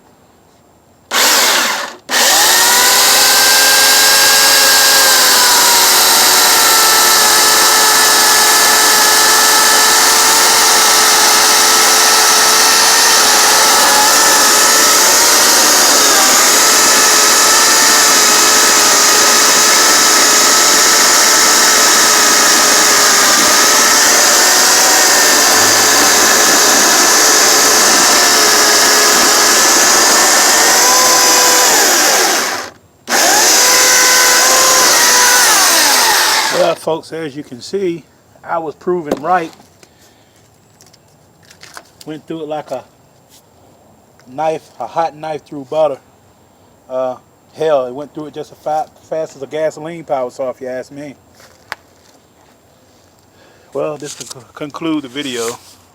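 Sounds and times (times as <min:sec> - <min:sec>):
electric chainsaw cutting wood: 0:01.1 - 0:36.8.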